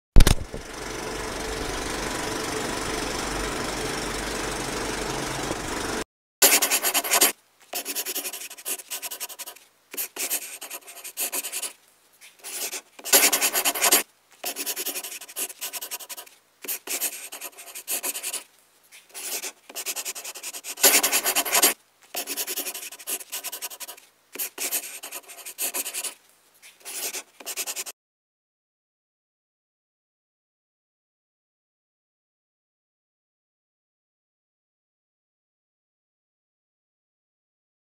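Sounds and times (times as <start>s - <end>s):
pen scratching on paper: 6.4s - 18.4s, 19.0s - 27.9s.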